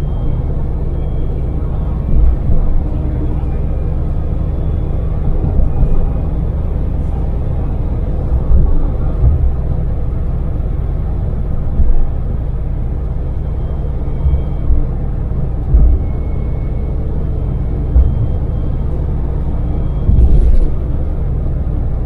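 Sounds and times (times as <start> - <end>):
low thumps: 0.0 - 22.0
van engine and road noise: 0.0 - 22.0.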